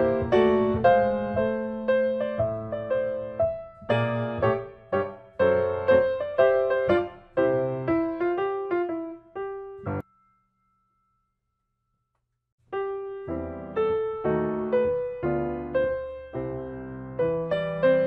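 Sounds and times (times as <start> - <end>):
piano music: 0.0 - 11.1, 12.7 - 18.0.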